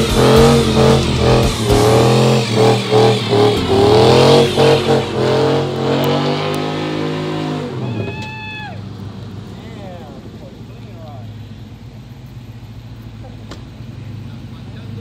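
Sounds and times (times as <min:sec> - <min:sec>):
high-pitched squeal: 0:00.0 - 0:08.8
car engine revving: 0:00.0 - 0:15.0.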